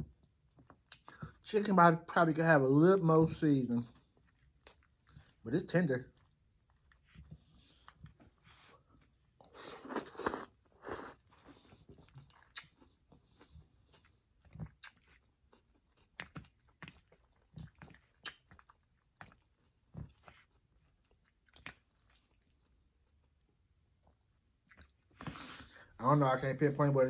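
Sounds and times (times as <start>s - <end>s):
chewing with wet smacks: 0.0s - 1.5s, 3.4s - 25.4s
person slurping noodles: 9.4s - 11.6s.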